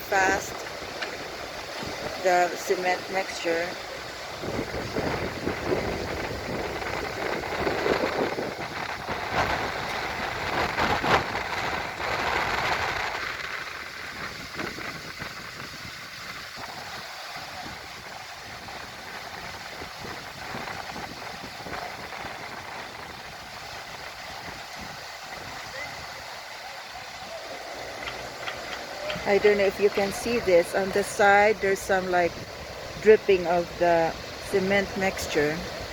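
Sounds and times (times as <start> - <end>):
diesel truck engines running: 0.0 - 14.2, 20.5 - 35.9.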